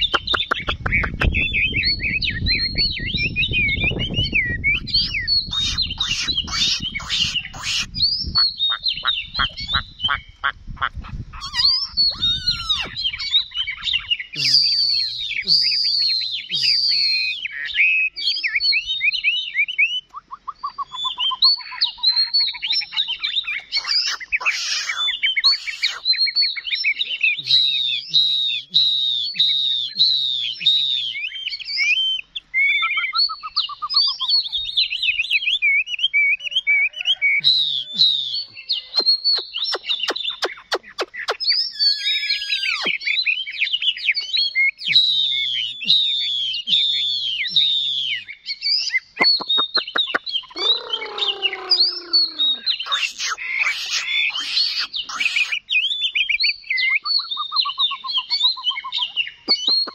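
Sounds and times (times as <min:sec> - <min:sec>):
bird sharp clicking notes: 0:00.0 - 0:01.5, 0:39.0 - 0:41.6, 0:49.2 - 0:50.4, 0:59.5 - 0:59.9
bird singing whistled song: 0:00.0 - 0:10.5, 0:11.3 - 0:59.9
harsh falling bird calls: 0:00.0 - 0:59.9.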